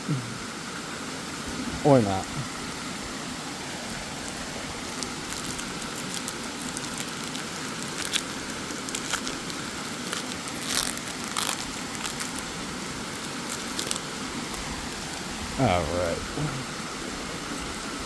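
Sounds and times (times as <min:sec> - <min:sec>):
waterfall rushing: 0:00.0 - 0:18.0
card packs crinkling: 0:04.1 - 0:15.6.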